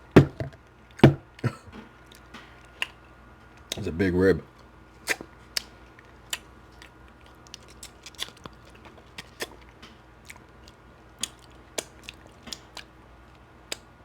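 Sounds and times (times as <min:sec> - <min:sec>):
person chewing meat: 0:04.5 - 0:14.0.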